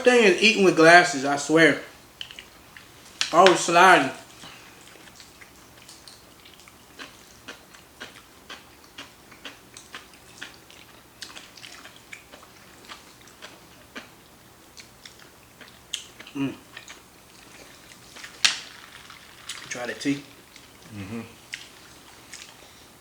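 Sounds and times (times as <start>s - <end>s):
person chewing noodles: 4.2s - 19.7s, 20.3s - 23.0s.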